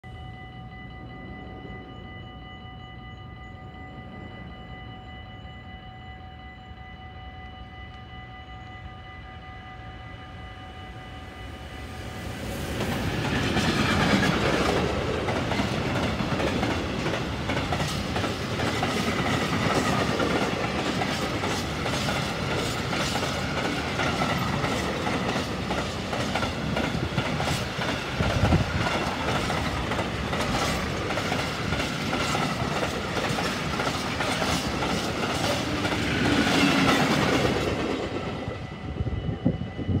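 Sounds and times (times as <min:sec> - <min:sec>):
electric locomotive passing: 0:00.0 - 0:40.0.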